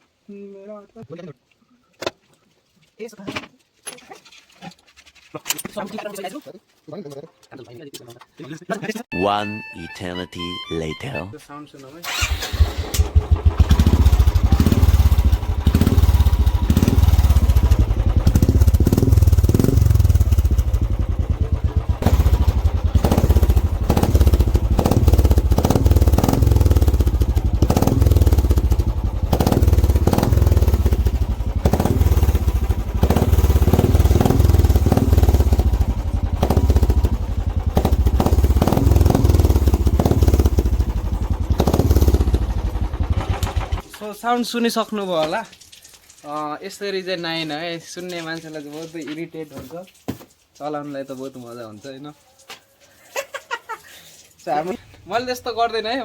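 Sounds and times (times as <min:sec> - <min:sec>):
loud motorcycle engine revving: 0:12.1 - 0:43.8.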